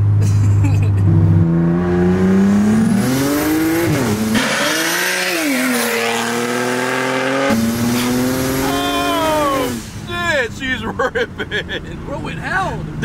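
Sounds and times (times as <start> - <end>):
car engine accelerating hard: 0.0 - 10.1.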